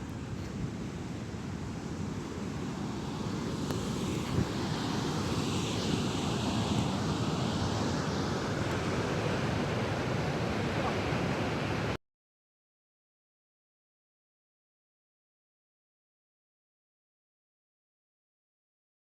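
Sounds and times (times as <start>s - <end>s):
wind buffeting microphone: 0.0s - 7.5s
fast-flowing water rushing: 0.0s - 12.0s.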